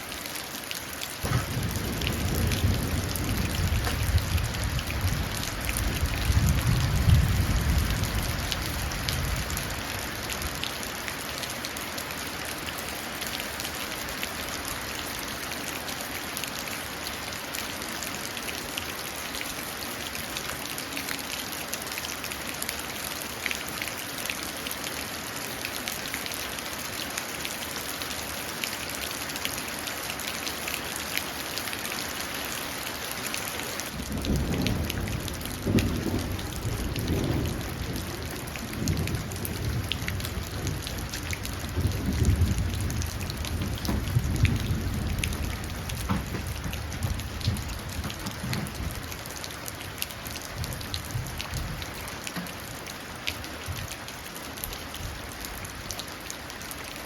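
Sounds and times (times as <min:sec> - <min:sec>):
rain pattering into a puddle: 0:00.0 - 0:57.0
thunder rumbling: 0:01.2 - 0:09.8, 0:33.9 - 0:49.3.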